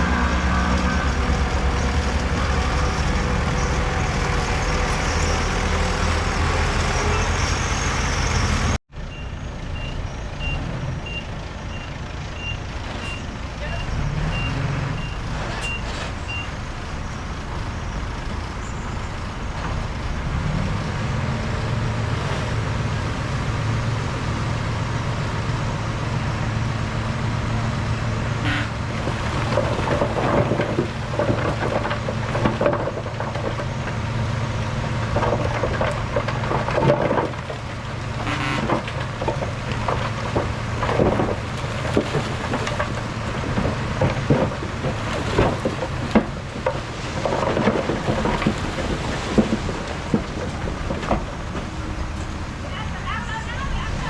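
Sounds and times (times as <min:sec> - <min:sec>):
diesel machinery running: 0:00.0 - 0:54.0
metal clanks and knocks: 0:28.9 - 0:34.0, 0:35.0 - 0:52.4.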